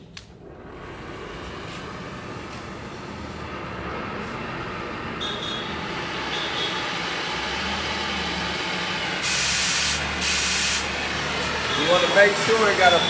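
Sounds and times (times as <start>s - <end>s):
cutting torch flame hissing: 5.2s - 13.0s.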